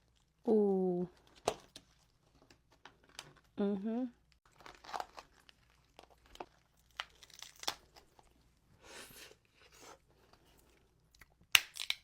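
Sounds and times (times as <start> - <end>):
shellfish shells cracking: 4.3 - 8.3, 11.2 - 12.0.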